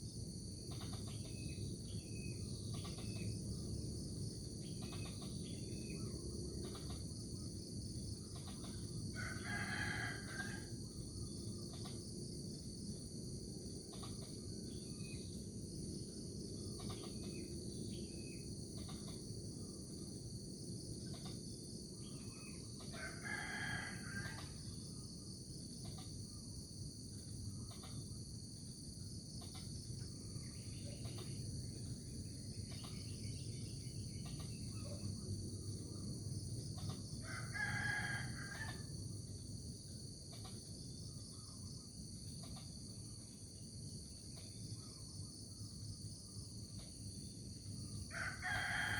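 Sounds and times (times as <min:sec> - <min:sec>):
crickets chirping: 0:00.0 - 0:48.9
rooster crowing: 0:09.1 - 0:10.8, 0:22.9 - 0:24.5, 0:37.2 - 0:38.9, 0:48.1 - 0:48.9.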